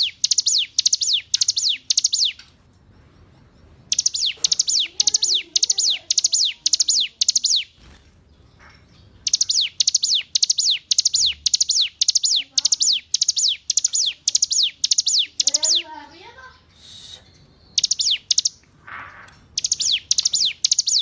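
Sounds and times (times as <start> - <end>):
bird singing high falling notes: 0.0 - 2.4, 3.9 - 7.7, 9.2 - 15.9.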